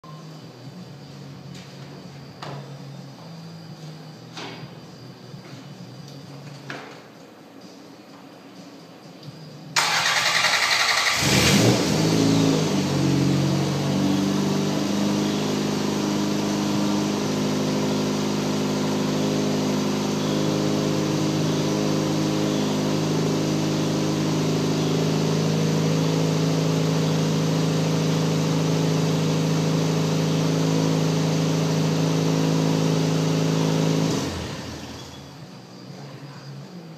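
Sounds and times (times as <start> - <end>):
car engine starting and idling: 9.7 - 35.9.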